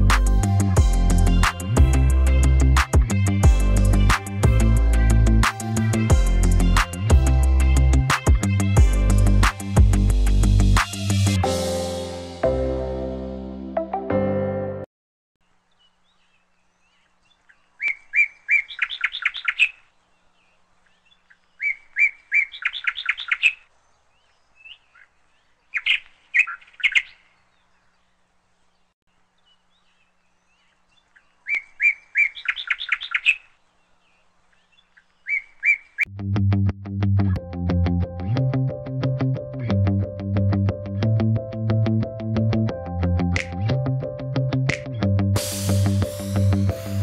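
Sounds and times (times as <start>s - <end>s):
songbird singing with trill: 15.7s - 36.1s.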